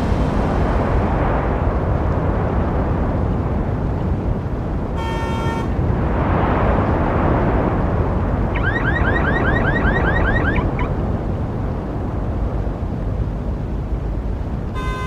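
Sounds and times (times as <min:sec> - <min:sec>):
road traffic rumbling: 0:07.0 - 0:12.7
rising electronic chirps: 0:08.6 - 0:10.9.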